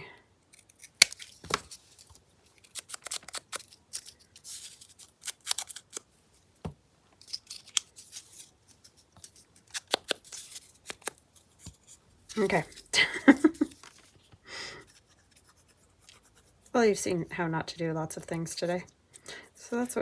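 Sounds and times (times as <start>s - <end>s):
scissors snipping paper: 0.5s - 6.1s, 7.2s - 14.1s, 14.8s - 16.8s.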